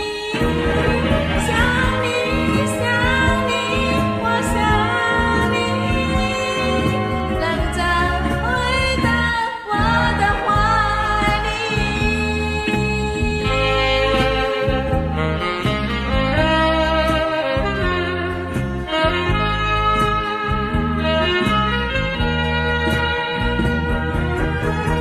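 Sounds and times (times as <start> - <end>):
person singing pop song: 0.0 - 15.3
recorded backing music: 0.0 - 25.0.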